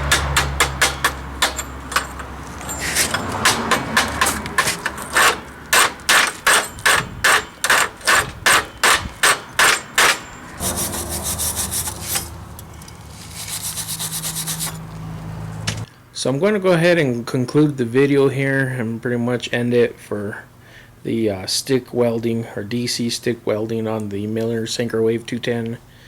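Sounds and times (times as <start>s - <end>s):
wire brush scraping steel: 9.3s - 15.0s.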